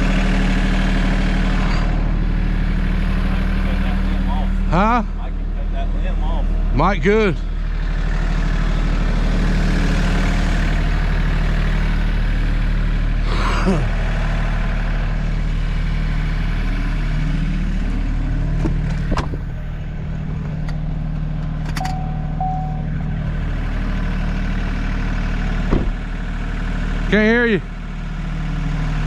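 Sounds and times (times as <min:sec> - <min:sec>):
large engine running: 0:00.0 - 0:29.0
brief steady beep: 0:21.8 - 0:23.0.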